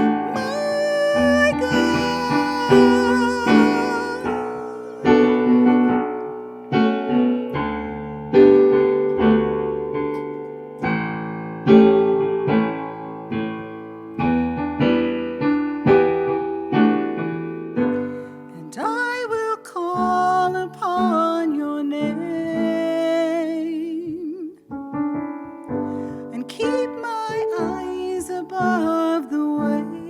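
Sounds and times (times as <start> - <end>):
piano playing slow chords: 0.0 - 18.9.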